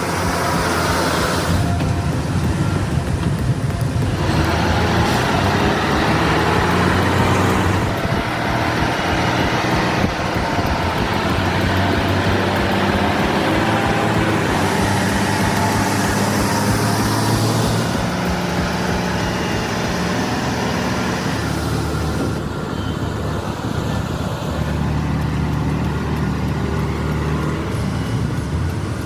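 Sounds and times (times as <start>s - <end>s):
road noise: 0.0s - 29.0s
traffic noise: 0.0s - 29.0s
truck engine droning: 0.0s - 29.0s.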